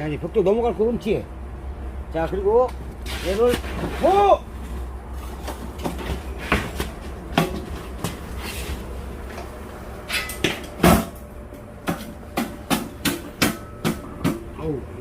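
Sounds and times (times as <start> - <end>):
metal knocks and clanks: 5.3 - 8.3.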